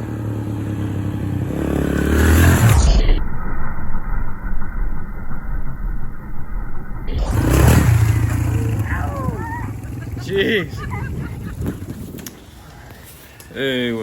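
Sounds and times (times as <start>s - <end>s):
car engine running and revving: 6.0s - 10.5s.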